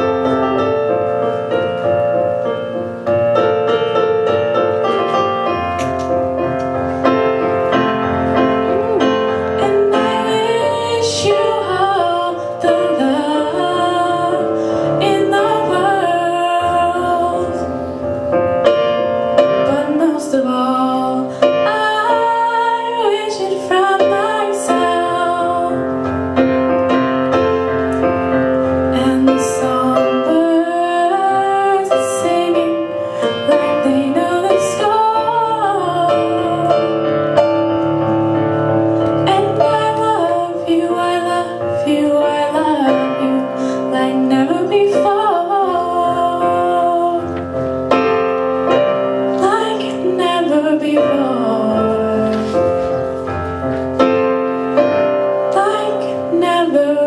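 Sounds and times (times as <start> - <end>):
piano playing: 0.0 - 57.0
woman singing: 7.7 - 17.9, 19.4 - 26.1, 28.8 - 37.4, 39.2 - 48.3, 49.3 - 52.8, 55.4 - 57.0.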